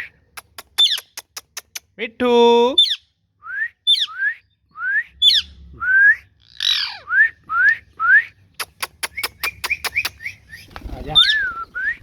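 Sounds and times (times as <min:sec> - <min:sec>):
parrot high chirps: 0:00.0 - 0:01.8, 0:06.4 - 0:07.1
parrot squawk: 0:06.4 - 0:07.1.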